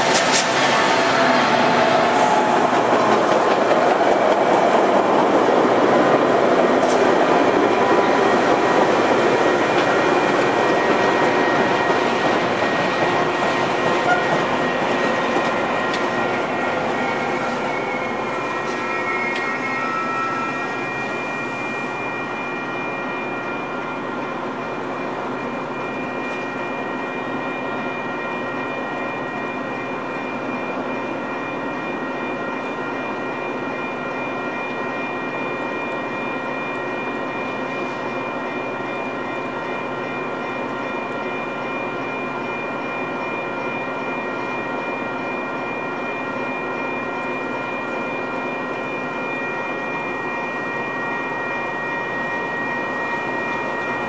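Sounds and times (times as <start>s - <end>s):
diesel locomotive running: 0.0s - 29.3s
brake squeal: 16.6s - 21.9s.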